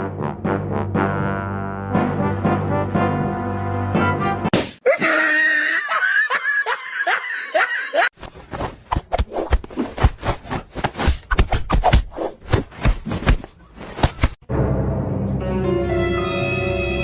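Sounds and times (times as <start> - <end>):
person laughing: 4.8 - 8.1.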